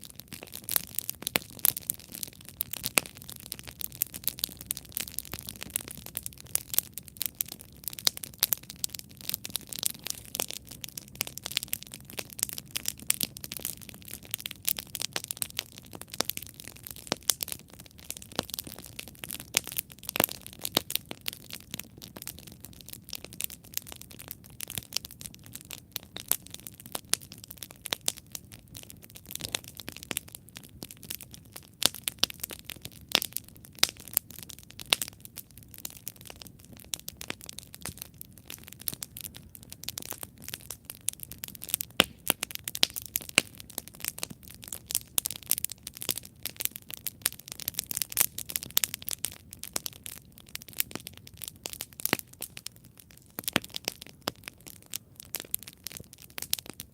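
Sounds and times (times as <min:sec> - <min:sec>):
campfire crackling: 0:00.0 - 0:56.9.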